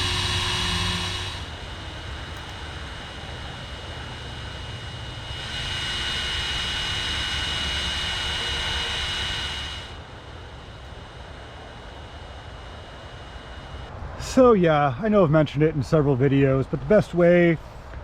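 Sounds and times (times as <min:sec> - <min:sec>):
electric air pump whining: 0:00.0 - 0:13.9.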